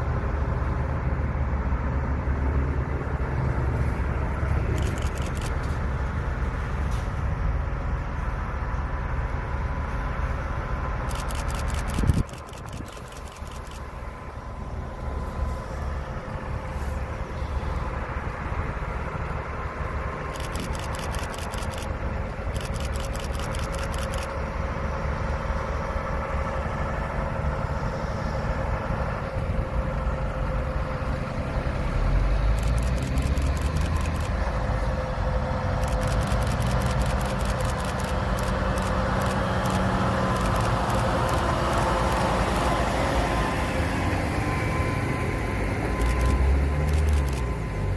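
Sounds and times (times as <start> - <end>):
truck engine rumbling: 0.0 - 47.9
fast even clicking rattle: 20.3 - 21.9, 22.5 - 24.3, 35.8 - 42.2.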